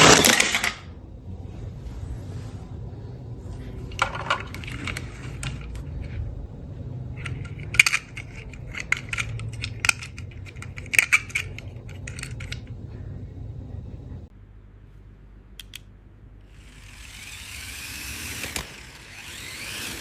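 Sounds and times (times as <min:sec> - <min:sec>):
plastic toys clicking and clattering: 0:00.0 - 0:00.9, 0:03.8 - 0:06.4, 0:07.1 - 0:13.6
faint steady low hum: 0:00.0 - 0:20.0.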